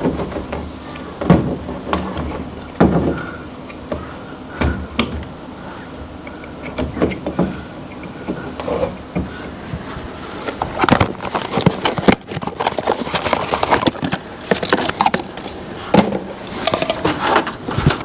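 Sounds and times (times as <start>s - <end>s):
knocks and clunks: 0.0s - 5.4s.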